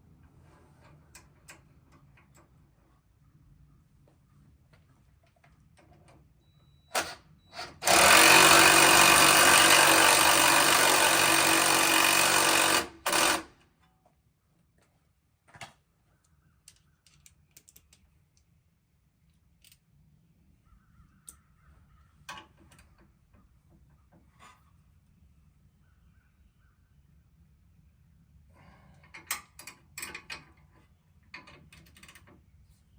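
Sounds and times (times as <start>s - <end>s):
power tool running: 7.0s - 13.5s.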